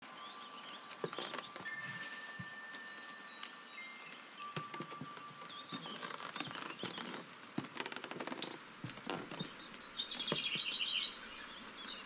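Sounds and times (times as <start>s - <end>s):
songbird warbling trill: 9.2s - 12.0s.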